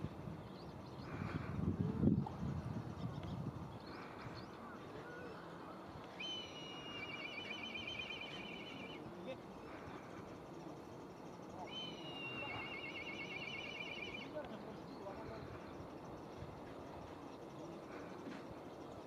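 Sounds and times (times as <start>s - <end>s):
bird song with rapid trill: 6.2s - 10.0s, 10.8s - 15.4s.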